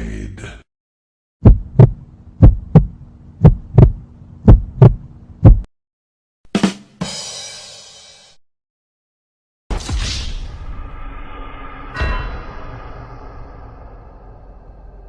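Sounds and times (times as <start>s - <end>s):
heartbeat thumps: 1.4s - 5.7s
low hum: 1.4s - 5.7s, 10.4s - 15.0s
crash-like noise: 9.7s - 15.0s
short hit: 9.7s - 15.0s.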